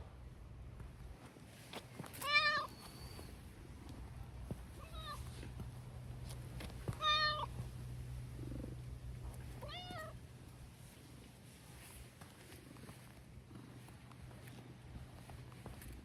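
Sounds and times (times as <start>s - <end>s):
steady low hum: 0.0s - 1.4s, 2.7s - 16.0s
cat meowing: 2.2s - 3.3s, 4.8s - 5.2s, 7.0s - 7.5s, 9.6s - 10.2s.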